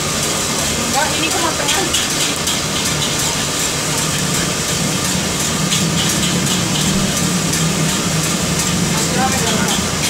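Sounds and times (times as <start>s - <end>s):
food sizzling on griddle: 0.0s - 10.0s.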